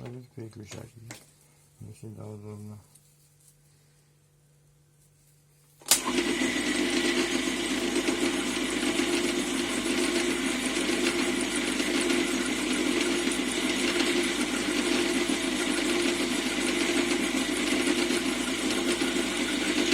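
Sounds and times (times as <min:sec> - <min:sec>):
lathe motor humming and whining: 0:06.0 - 0:19.9.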